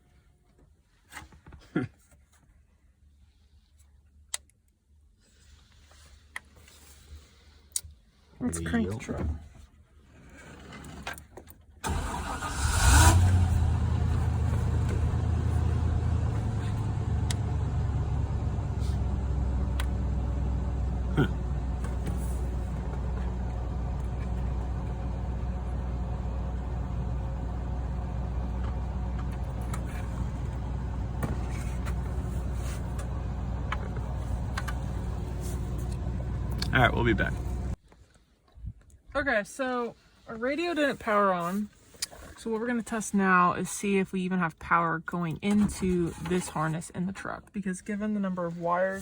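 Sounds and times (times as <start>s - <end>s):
pickup engine starting and idling: 11.8s - 37.8s.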